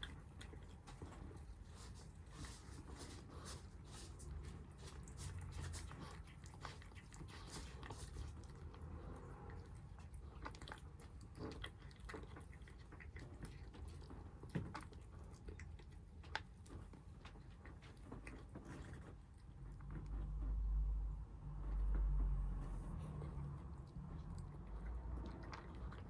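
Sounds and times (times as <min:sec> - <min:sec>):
kittens crunching food: 0:00.0 - 0:26.0
low rumble: 0:19.8 - 0:25.9.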